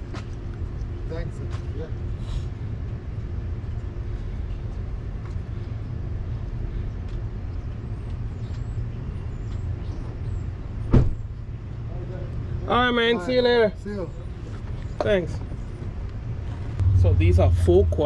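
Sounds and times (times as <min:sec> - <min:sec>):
vehicle engine idling: 0:14.1 - 0:18.0.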